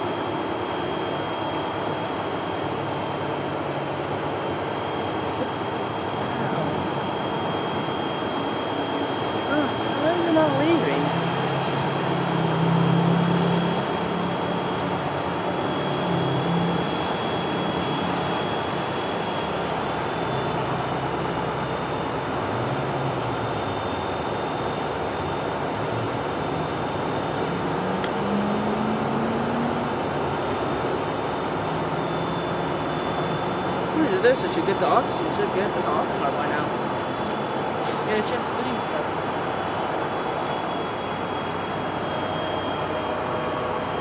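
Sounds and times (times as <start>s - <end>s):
diesel locomotive idling: 0.0s - 44.0s
faint high whine: 0.0s - 44.0s.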